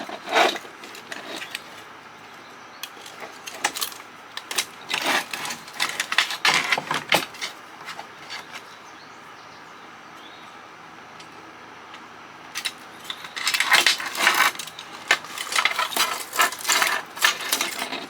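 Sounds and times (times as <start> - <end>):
metal parts clinking and clattering: 2.8 - 8.0, 12.6 - 18.0.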